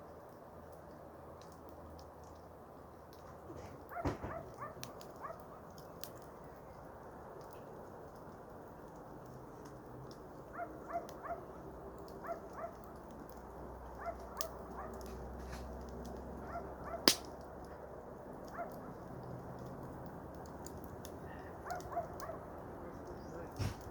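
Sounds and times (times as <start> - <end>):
campfire crackling and popping: 0.0 - 23.9
loud snap of fire: 14.2 - 17.7.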